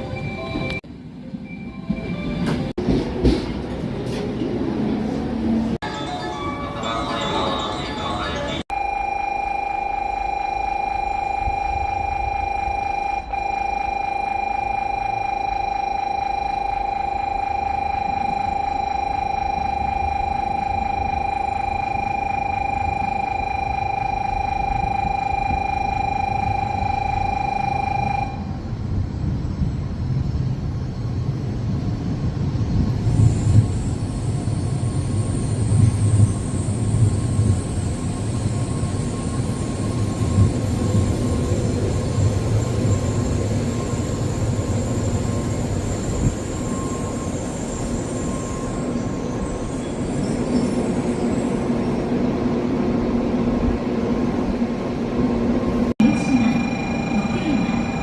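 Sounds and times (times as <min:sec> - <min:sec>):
train wheels rumbling: 0:01.8 - 0:05.8
steady electronic tone: 0:08.7 - 0:28.6, 0:56.0 - 0:58.0
high whine: 0:08.7 - 0:28.7, 0:55.7 - 0:58.0.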